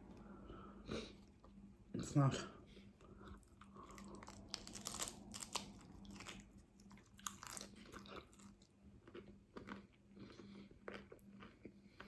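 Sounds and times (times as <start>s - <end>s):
crunching hard-shell taco: 3.3s - 12.0s.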